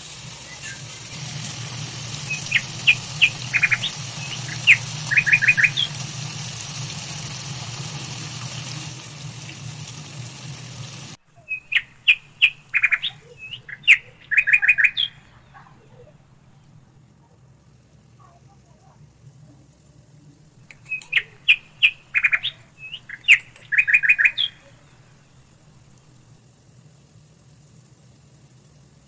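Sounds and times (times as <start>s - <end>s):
small bird chirping: 0.0s - 9.8s, 11.3s - 17.0s, 20.6s - 25.8s
steady hiss and low hum: 0.0s - 29.0s.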